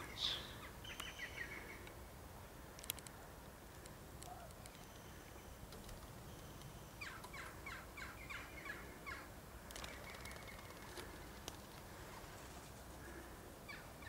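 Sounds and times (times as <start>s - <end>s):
faint background hiss: 0.0s - 14.0s
light ticks: 2.7s - 5.0s.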